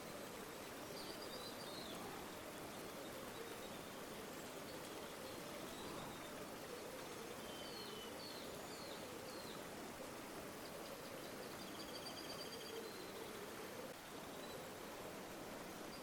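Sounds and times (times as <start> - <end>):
river water flowing: 12.9 - 16.0.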